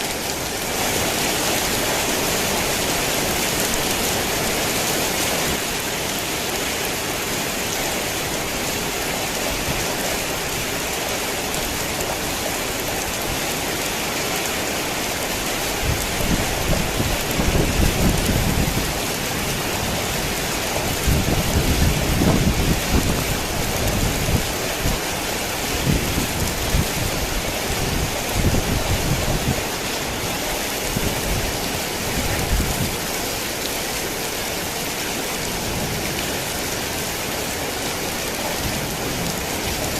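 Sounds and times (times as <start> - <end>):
heavy rain falling: 0.0 - 39.9
rolling thunder: 15.9 - 20.3, 20.9 - 24.5.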